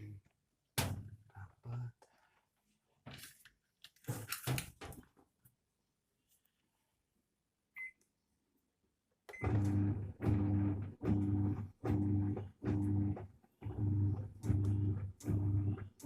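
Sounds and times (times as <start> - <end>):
washing machine motor pulsing: 9.3 - 16.0.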